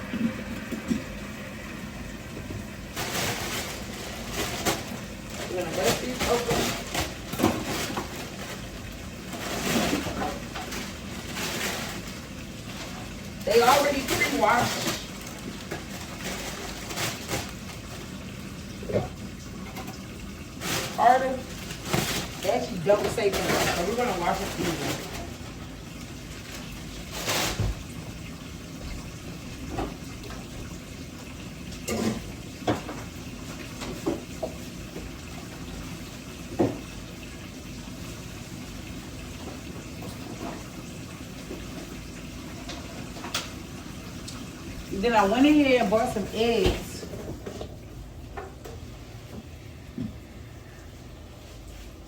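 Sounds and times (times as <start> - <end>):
faucet running into sink: 0.0 - 3.0, 17.4 - 48.9.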